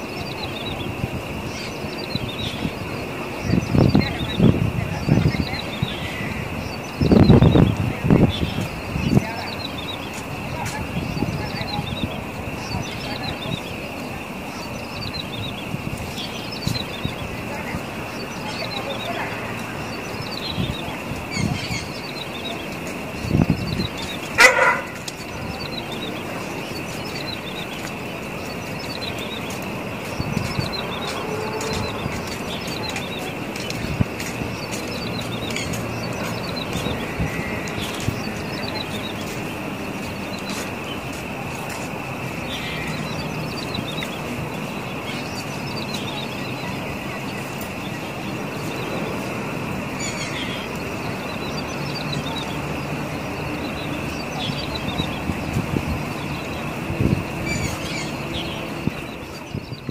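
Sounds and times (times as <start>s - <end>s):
loud bird call: 0.0s - 40.6s
background noise: 0.0s - 59.9s.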